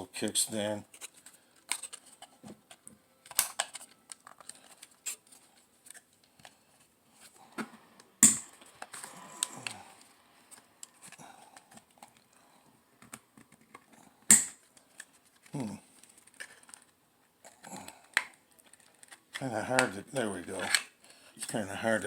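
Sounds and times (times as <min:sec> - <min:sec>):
plastic clicks and scrapes: 0:00.9 - 0:06.6, 0:17.5 - 0:19.9.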